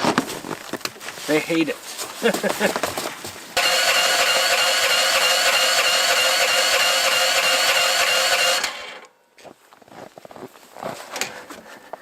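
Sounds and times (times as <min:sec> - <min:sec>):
starter motor cranking: 0:03.6 - 0:09.1.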